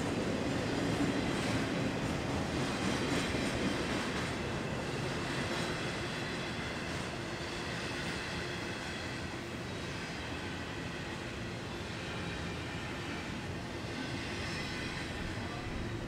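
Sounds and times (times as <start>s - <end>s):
steel wheels clacking on rail: 0.0s - 8.2s
freight train rolling past: 0.0s - 16.0s.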